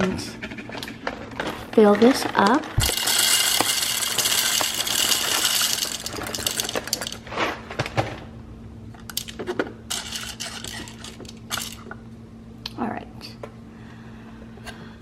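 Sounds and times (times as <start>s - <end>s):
coffee beans pouring: 2.8s - 7.4s, 9.1s - 11.9s.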